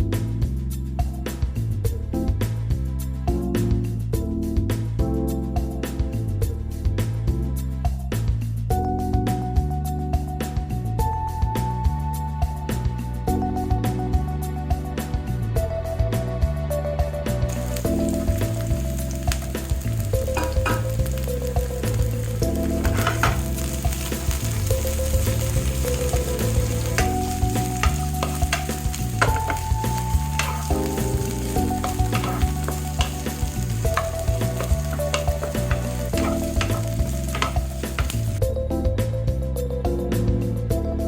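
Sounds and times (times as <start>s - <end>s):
background music: 0.0s - 41.0s
food sizzling in pan: 17.5s - 38.4s
spatula clicking against pan: 25.7s - 38.3s.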